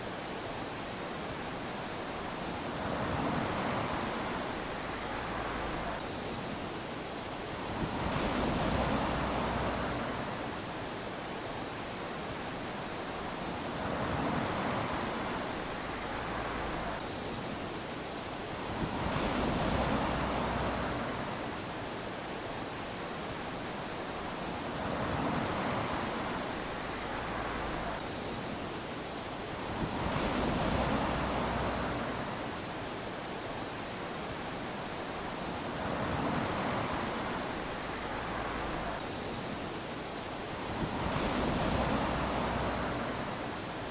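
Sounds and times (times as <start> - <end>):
small waves lapping on sand: 0.0 - 43.9.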